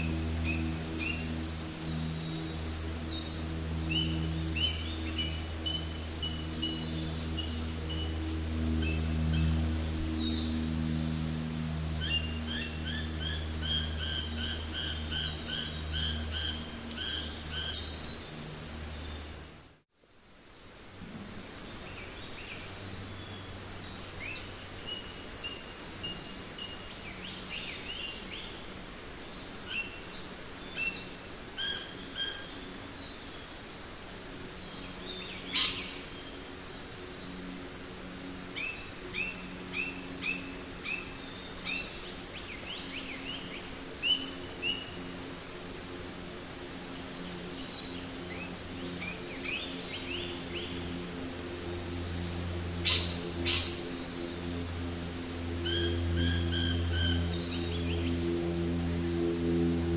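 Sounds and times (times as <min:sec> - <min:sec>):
faint steady background noise: 0:00.0 - 0:59.9
birds chirping and calling: 0:52.2 - 0:54.0.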